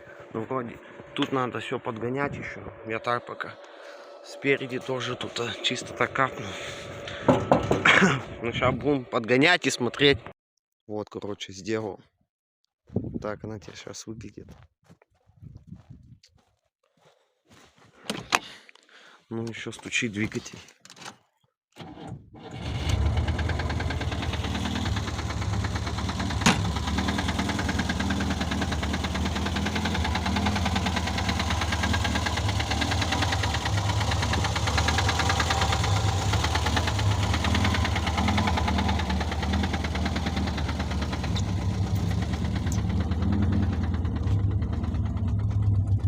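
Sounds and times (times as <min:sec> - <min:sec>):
car engine idling with a knock: 0:07.3 - 0:08.0.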